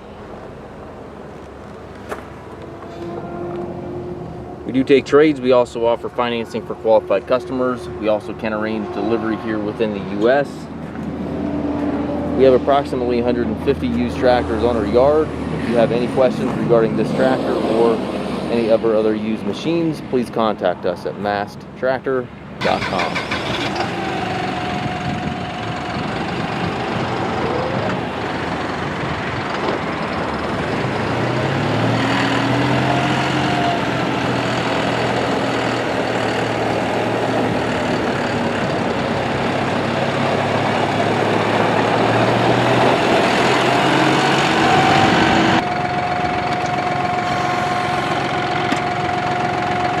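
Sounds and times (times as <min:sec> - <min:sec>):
deeper drone: 0:00.0 - 0:19.4, 0:22.8 - 0:50.0
tractor diesel engine running: 0:00.0 - 0:20.0, 0:22.6 - 0:50.0.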